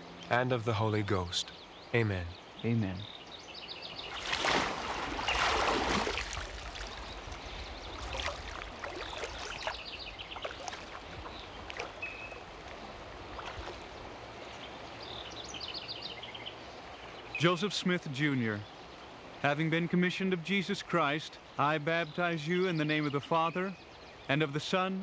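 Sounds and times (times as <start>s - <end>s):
birds chirping: 0.0s - 25.0s
water dripping and trickling: 4.0s - 14.5s
water sloshing and splashing: 4.0s - 14.8s.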